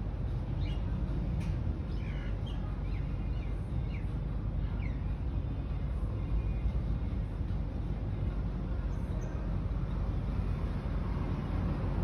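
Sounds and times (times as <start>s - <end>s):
small birds chirping: 0.5s - 1.0s, 1.8s - 5.2s.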